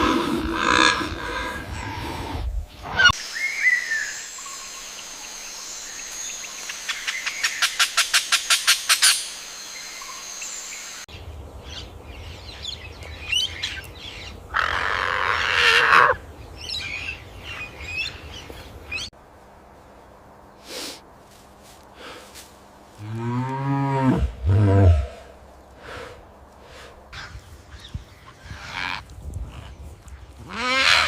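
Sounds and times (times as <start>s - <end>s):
harsh raspy bird call: 30.5s - 31.0s.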